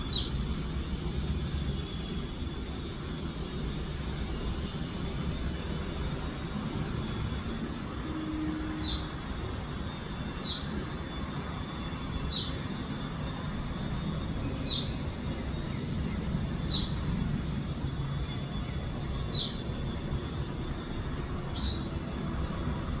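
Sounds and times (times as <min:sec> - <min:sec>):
sparrow chirping: 0:00.1 - 0:00.3, 0:08.8 - 0:09.1, 0:10.4 - 0:10.7, 0:12.3 - 0:12.6, 0:14.6 - 0:15.0, 0:16.7 - 0:17.0, 0:19.3 - 0:19.6, 0:21.6 - 0:21.9.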